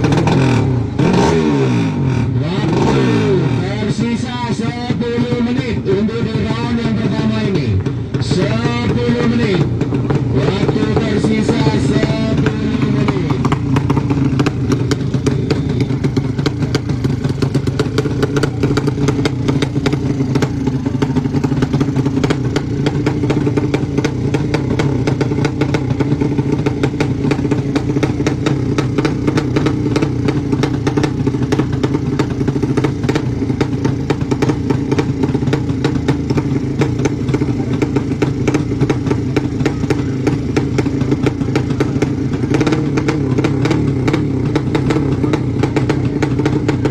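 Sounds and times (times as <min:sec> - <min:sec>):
motorcycle engine idling: 0:00.0 - 0:46.9.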